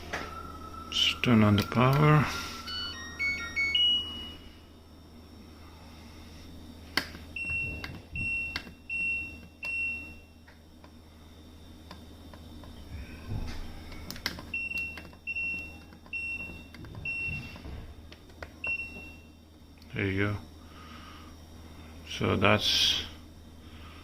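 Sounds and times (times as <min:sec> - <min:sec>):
high single-tone beeps: 0:00.9 - 0:04.4.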